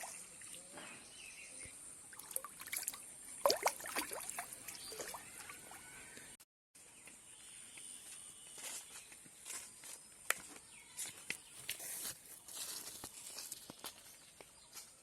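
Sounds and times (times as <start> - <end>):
water splashing and trickling: 0.0 - 0.8, 2.0 - 6.1.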